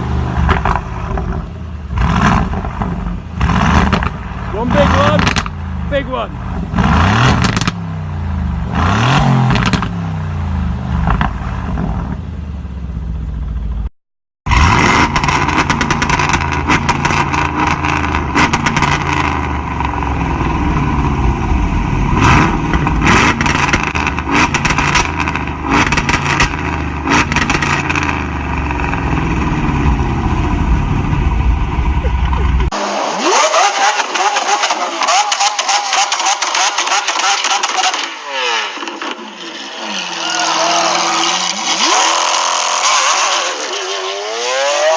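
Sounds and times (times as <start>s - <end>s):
car exhausts revving: 0.0s - 13.9s, 14.5s - 44.9s
exhaust crackles: 0.0s - 13.9s.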